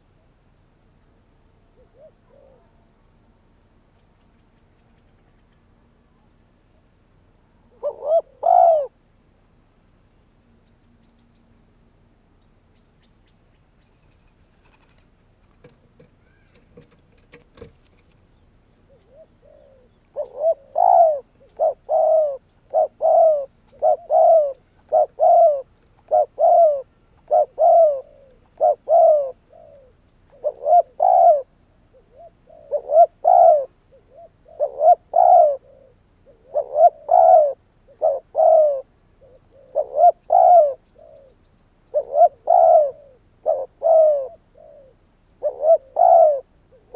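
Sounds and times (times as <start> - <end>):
dove cooing: 1.7 - 2.8, 7.6 - 9.0, 15.6 - 18.1, 18.8 - 46.9.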